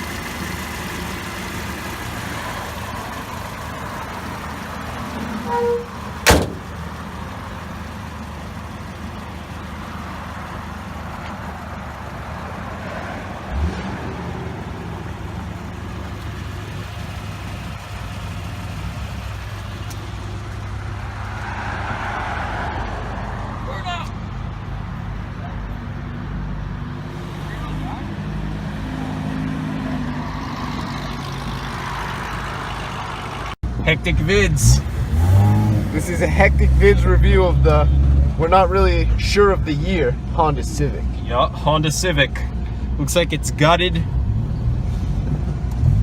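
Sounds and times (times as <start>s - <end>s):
car engine idling: 0.0s - 13.6s, 14.4s - 26.2s, 27.1s - 44.2s
low thump: 6.2s - 6.7s.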